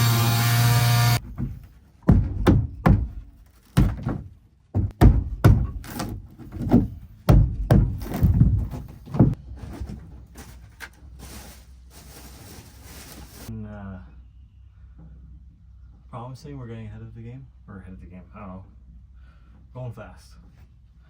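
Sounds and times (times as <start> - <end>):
dull knocks on wood: 1.2 - 9.4.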